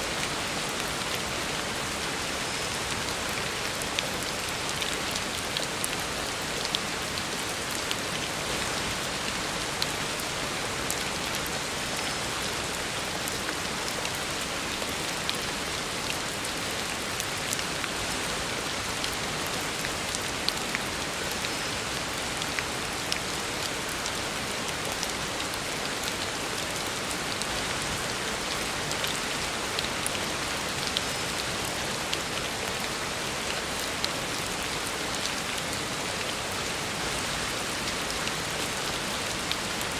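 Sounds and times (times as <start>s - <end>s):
heavy rain on a road: 0.0s - 39.9s.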